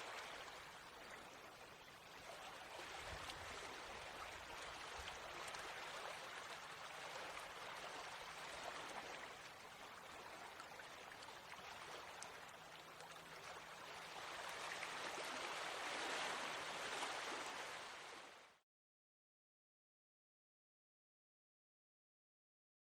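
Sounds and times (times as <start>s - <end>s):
stream burbling over stones: 0.0s - 18.4s.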